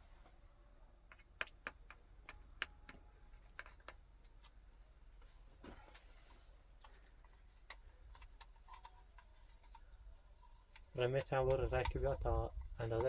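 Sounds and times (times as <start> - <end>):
faint clicks and taps: 1.0 - 4.6, 6.8 - 13.0.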